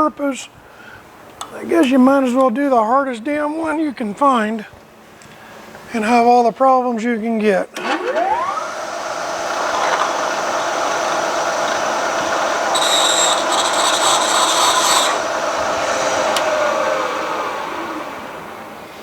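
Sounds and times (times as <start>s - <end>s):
milling machine drilling steel: 7.8s - 18.3s
high squeal: 10.1s - 19.0s.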